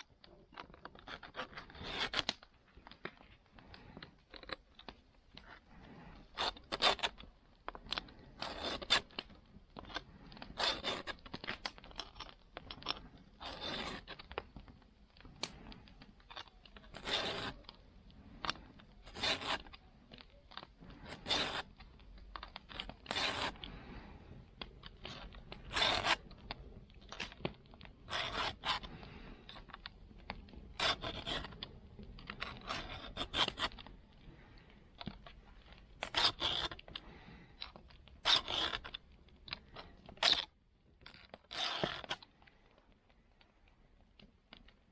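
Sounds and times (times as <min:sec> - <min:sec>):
file rasping on saw teeth: 0:08.4 - 0:09.1, 0:10.4 - 0:11.2, 0:13.4 - 0:14.2, 0:16.9 - 0:17.6, 0:19.0 - 0:19.7, 0:21.0 - 0:21.7, 0:23.0 - 0:23.6, 0:25.1 - 0:26.2, 0:28.1 - 0:28.9, 0:30.8 - 0:31.6, 0:32.5 - 0:33.8, 0:36.0 - 0:36.9, 0:38.2 - 0:38.9, 0:41.5 - 0:42.2.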